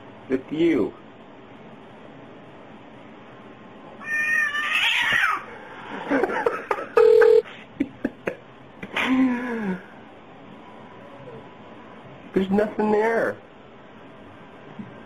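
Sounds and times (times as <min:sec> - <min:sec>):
cat yowling and meowing: 0:04.0 - 0:05.5
flat beep-like tone: 0:07.0 - 0:07.4.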